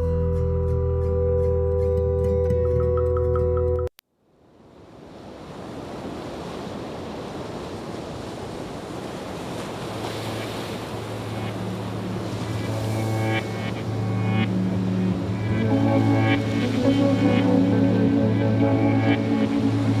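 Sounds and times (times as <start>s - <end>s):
wind: 0.0s - 20.0s
ocean surf: 4.4s - 20.0s
soft music with sustained tones: 10.8s - 20.0s
low hum: 10.9s - 20.0s.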